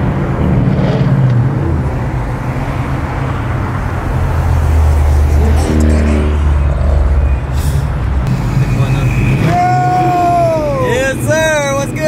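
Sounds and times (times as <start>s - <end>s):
car engine droning in cabin: 4.4s - 12.0s.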